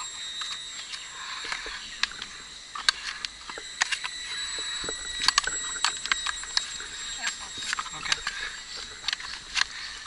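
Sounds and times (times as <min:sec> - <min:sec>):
faint high-pitched whine: 0:00.0 - 0:10.0.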